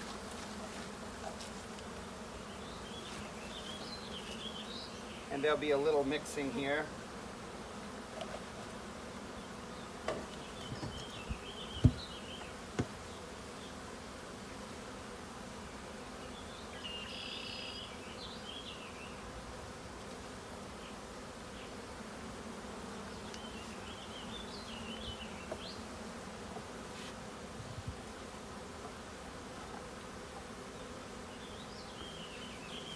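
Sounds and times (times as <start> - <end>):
honeybees buzzing: 0.0 - 32.9
sharp knocks: 10.1 - 12.1.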